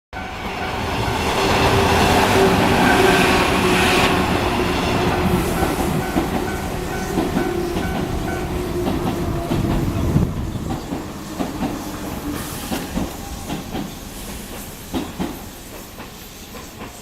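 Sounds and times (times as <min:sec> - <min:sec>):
train wheels clattering on rails: 0:00.7 - 0:17.0
crossing warning bell dinging: 0:04.6 - 0:13.6.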